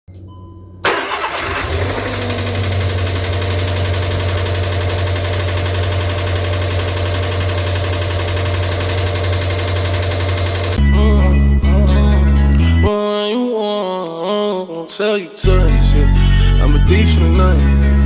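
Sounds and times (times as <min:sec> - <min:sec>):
car engine starting and idling: 0:00.8 - 0:10.8.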